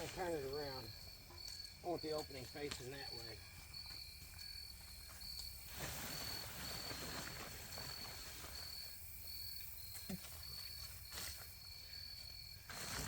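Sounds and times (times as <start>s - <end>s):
insects chirping: 0.0s - 13.0s
tent fabric rustling: 5.6s - 8.7s.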